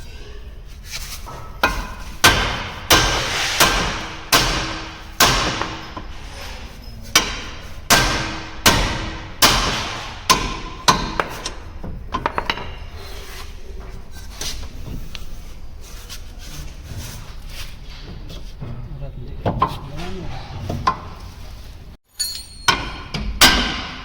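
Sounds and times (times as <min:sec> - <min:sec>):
hammer strikes on steel: 0:01.6 - 0:06.0, 0:07.1 - 0:11.6, 0:22.4 - 0:24.0.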